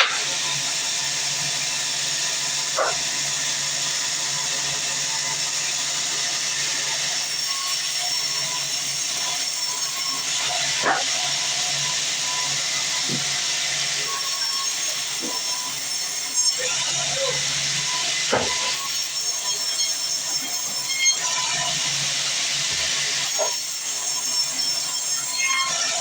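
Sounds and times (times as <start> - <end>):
band saw running: 0.0 - 26.0.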